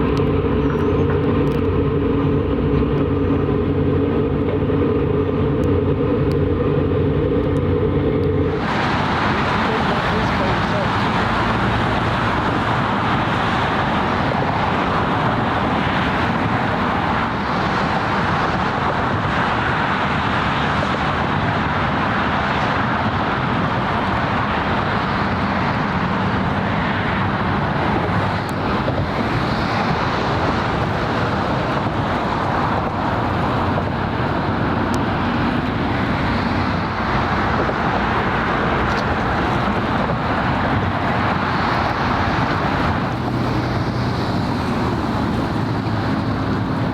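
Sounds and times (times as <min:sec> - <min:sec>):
road traffic drone: 0:00.0 - 0:46.9.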